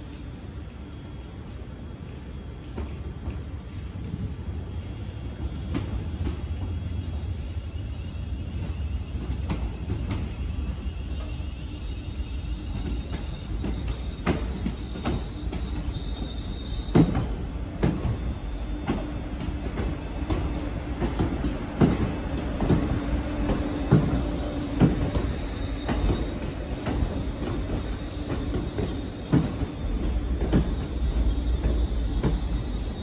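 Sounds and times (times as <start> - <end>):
low train rumble: 0.0 - 33.0
faint high wheel squeal: 8.1 - 33.0
train wheels clacking over rail joints: 12.7 - 33.0.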